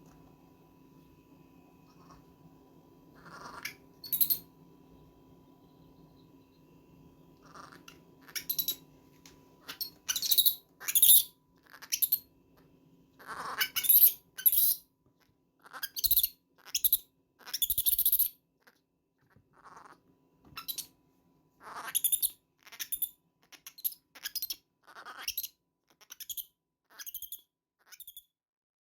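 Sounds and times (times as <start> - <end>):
baby monkey screaming: 1.9 - 2.2, 3.2 - 4.4, 7.4 - 8.8, 9.6 - 12.3, 13.2 - 14.8, 15.6 - 20.0, 21.6 - 28.3.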